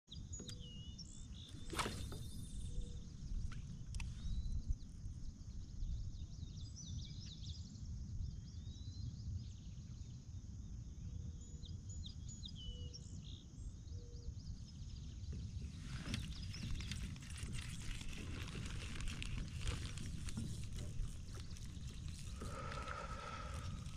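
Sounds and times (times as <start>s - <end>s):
low rumble of wind: 0.1s - 23.9s
rustling hiss: 15.7s - 23.9s.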